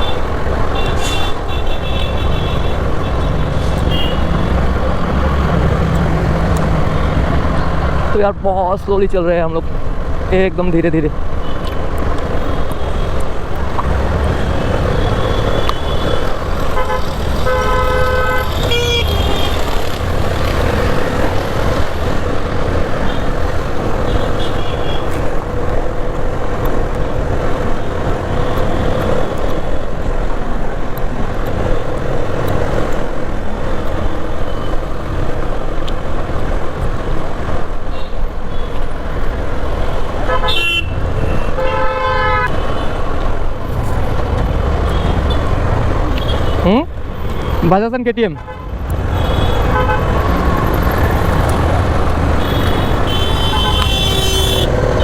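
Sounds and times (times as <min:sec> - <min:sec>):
vehicle horns honking: 0:00.0 - 0:04.7, 0:14.3 - 0:19.8, 0:24.1 - 0:25.2, 0:40.2 - 0:43.1, 0:48.4 - 0:50.7, 0:51.6 - 0:55.0
motorcycle engine and road rumble: 0:00.0 - 0:10.6, 0:11.2 - 0:47.6, 0:48.5 - 0:55.0.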